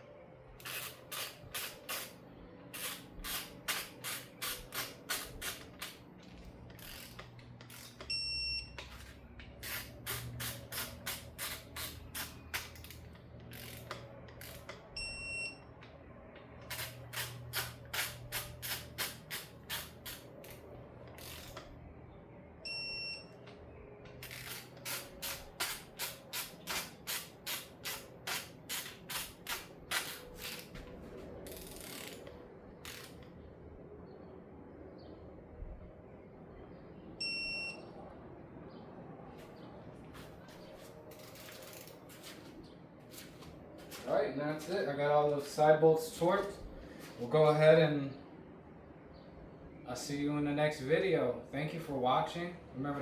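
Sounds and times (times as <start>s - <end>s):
torque wrench ratchet clicking: 0.6s - 2.2s, 2.8s - 6.0s, 6.7s - 8.2s, 8.8s - 14.8s, 16.6s - 21.7s, 24.2s - 30.7s, 31.5s - 33.3s, 41.2s - 41.9s.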